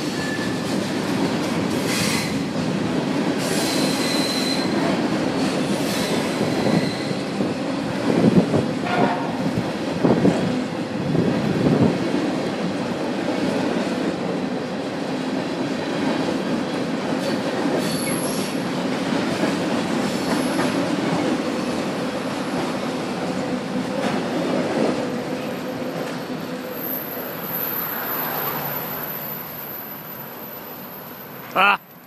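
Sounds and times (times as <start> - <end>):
train wheels rumbling on rail: 0.0 - 31.5
high wheel squeals: 0.1 - 0.7, 3.5 - 4.8, 5.8 - 7.4, 17.8 - 18.6.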